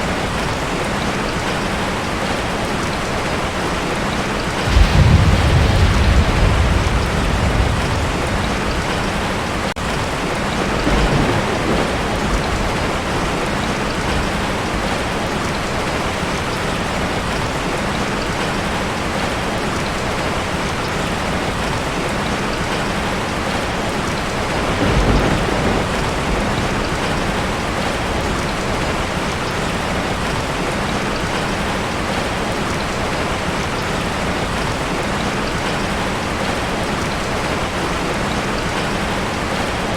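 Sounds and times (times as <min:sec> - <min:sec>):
heavy rain drumming on a tin roof: 0:00.0 - 0:39.9
low thunder rumble: 0:04.5 - 0:15.3, 0:24.2 - 0:30.3.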